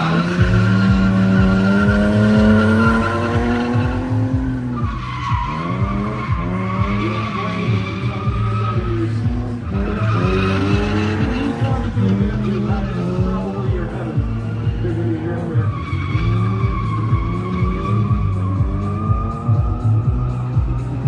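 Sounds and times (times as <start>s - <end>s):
tyres squealing: 0.0s - 18.5s
car engine revving hard: 0.0s - 21.0s.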